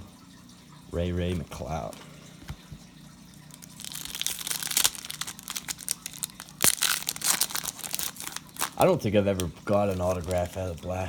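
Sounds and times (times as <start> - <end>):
plastic wrapper crinkling and tearing: 3.4 - 11.0.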